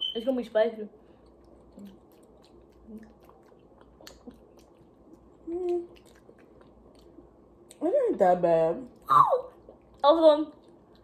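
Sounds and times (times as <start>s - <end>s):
person chewing with mouth clicks: 1.2s - 7.8s
person humming: 5.4s - 6.0s.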